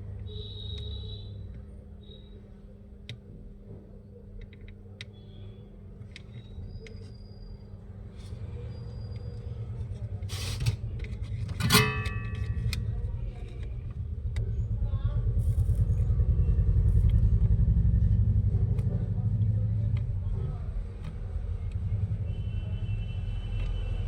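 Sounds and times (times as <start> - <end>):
small clicks and taps of tools: 4.4 - 5.2.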